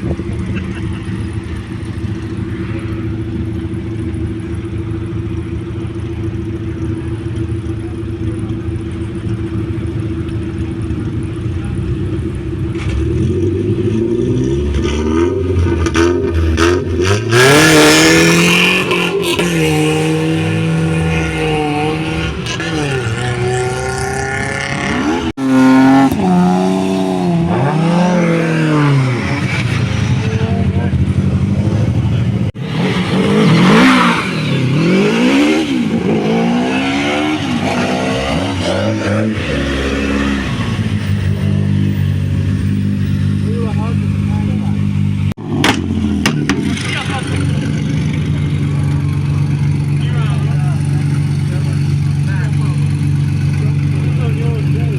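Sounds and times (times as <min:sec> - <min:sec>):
car engine idling and revving: 0:00.0 - 0:54.9
car accelerating hard: 0:10.0 - 0:54.9.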